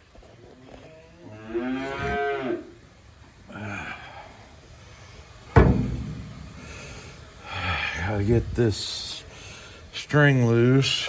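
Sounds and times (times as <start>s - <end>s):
cow mooing: 1.0s - 2.8s
loud slam: 5.6s - 6.9s.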